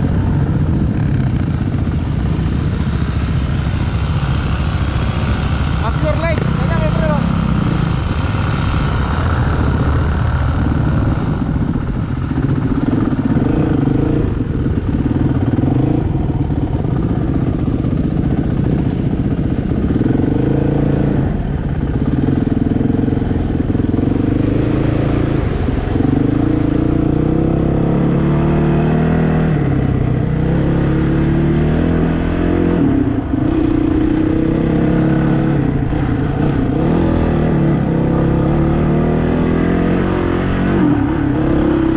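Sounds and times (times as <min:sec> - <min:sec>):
dirt bike engine revving: 0:00.0 - 0:18.8, 0:30.3 - 0:41.9.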